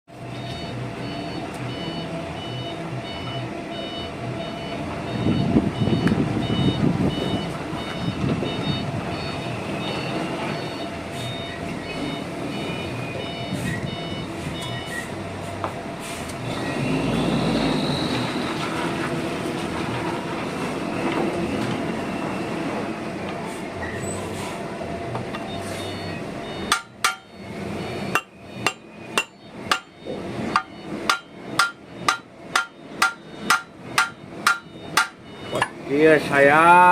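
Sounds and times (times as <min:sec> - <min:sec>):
steady workshop hum: 0:00.1 - 0:36.9
high beeping: 0:00.3 - 0:15.2, 0:25.4 - 0:36.9.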